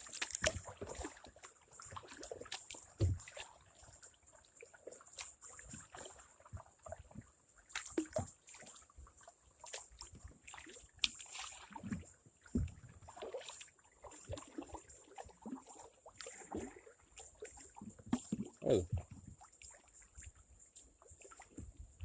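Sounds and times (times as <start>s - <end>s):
water sloshing and dripping: 0.0s - 22.0s
paddle knocking against boat: 3.0s - 3.3s, 11.8s - 12.8s.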